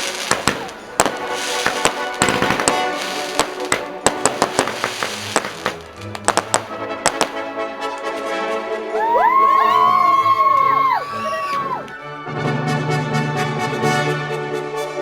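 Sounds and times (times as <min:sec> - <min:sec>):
fireworks bangs and crackles: 0:00.0 - 0:10.5
music: 0:00.0 - 0:15.0.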